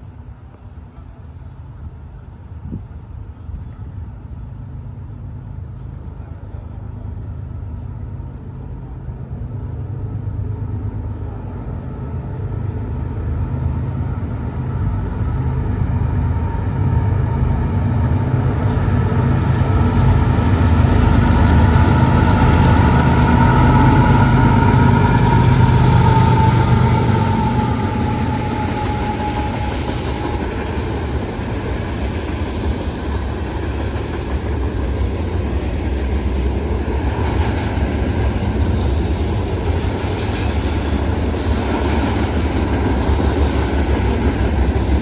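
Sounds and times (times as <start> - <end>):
train rumble: 0.0 - 45.0.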